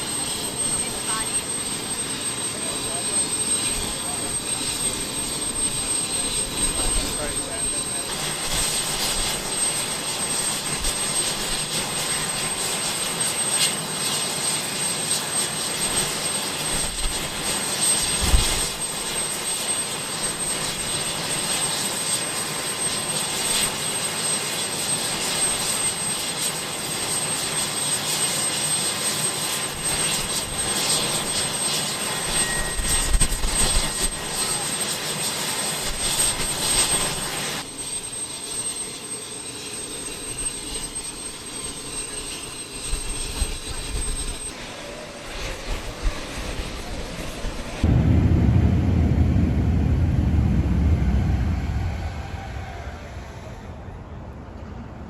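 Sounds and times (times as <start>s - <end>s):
jet aircraft engine rushing: 0.0s - 55.0s.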